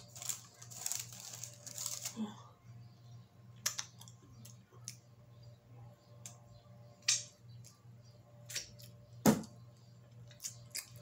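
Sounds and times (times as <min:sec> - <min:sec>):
steady low hum: 0:00.0 - 0:11.0
clicks and crackles of eating: 0:03.5 - 0:05.1, 0:07.0 - 0:07.8, 0:08.4 - 0:09.0, 0:09.7 - 0:11.0.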